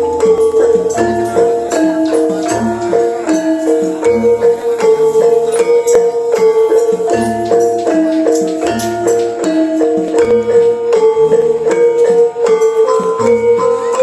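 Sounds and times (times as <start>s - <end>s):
gamelan music over loudspeakers: 0.0s - 14.0s.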